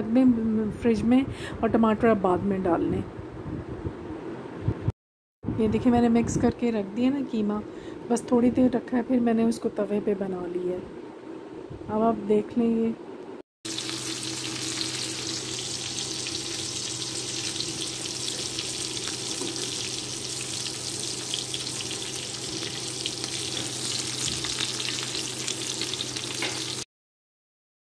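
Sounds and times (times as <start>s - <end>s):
low steady hum: 5.5s - 26.4s
kebabs sizzling in oil: 13.7s - 26.9s.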